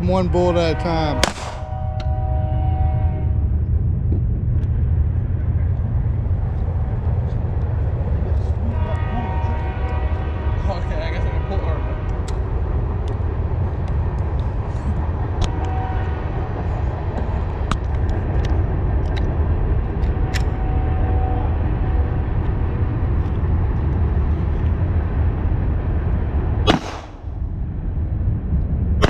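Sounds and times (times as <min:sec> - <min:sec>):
utility vehicle engine rumble: 0:00.0 - 0:29.0
sharp crack: 0:01.2 - 0:02.1, 0:26.6 - 0:27.3.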